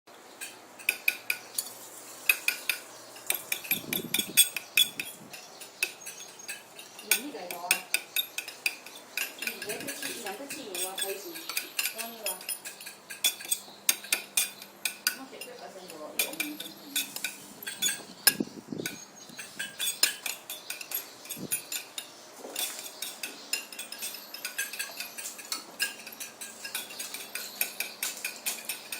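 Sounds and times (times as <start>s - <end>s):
metal utensil tapping a dish: 0.4s - 1.7s, 2.3s - 28.9s.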